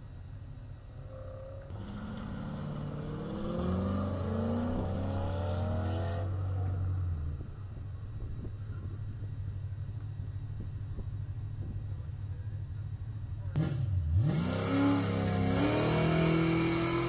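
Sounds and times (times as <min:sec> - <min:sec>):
car engine accelerating hard: 0:01.6 - 0:07.5, 0:13.5 - 0:17.0.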